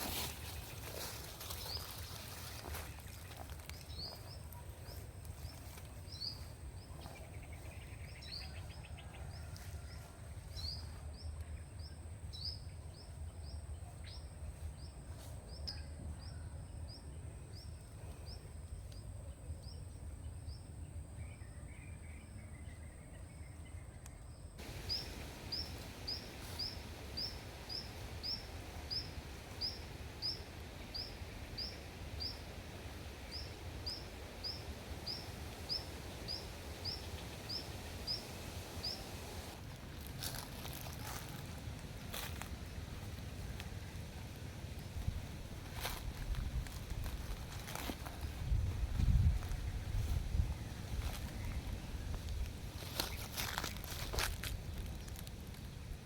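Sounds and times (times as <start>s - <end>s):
small bird chirping: 24.1s - 39.6s
low outdoor rumble: 24.6s - 56.0s.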